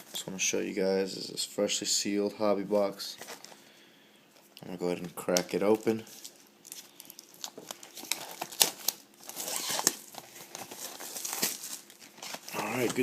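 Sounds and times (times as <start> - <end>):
plastic shrink-wrap tearing and crinkling: 5.2 - 13.0.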